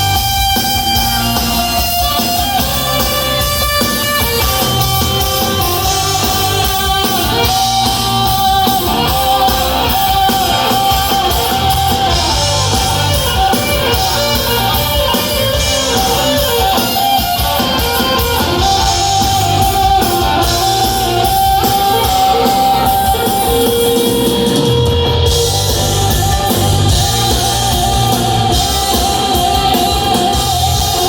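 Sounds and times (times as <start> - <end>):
bass: 0.0 - 31.0
drums: 0.0 - 31.0
electric guitars: 0.0 - 31.0.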